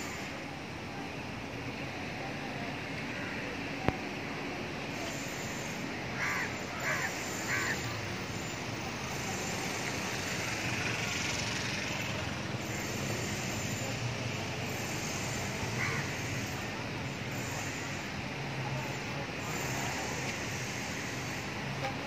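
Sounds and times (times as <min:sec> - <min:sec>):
steady background noise: 0:00.0 - 0:22.0
bird calling: 0:06.2 - 0:08.0, 0:15.7 - 0:16.6.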